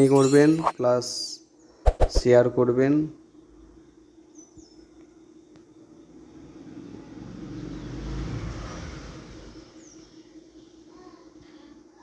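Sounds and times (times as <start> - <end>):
steady low hum: 0.0 - 7.6
road vehicle passing: 6.1 - 10.6.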